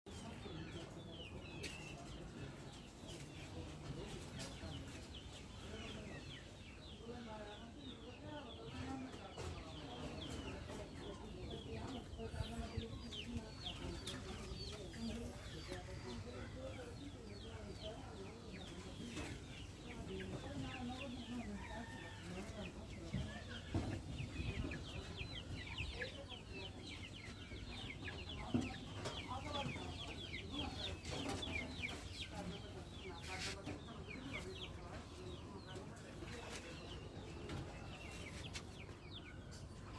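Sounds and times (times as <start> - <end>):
chickens clucking: 0.1 - 39.9.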